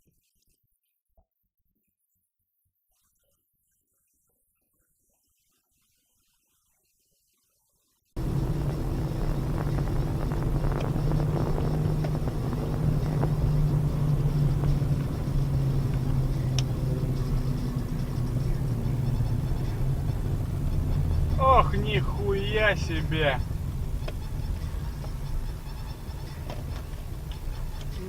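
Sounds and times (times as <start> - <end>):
car engine hum: 8.2 - 28.0
faint clicks: 8.2 - 28.0
road noise: 8.2 - 28.0.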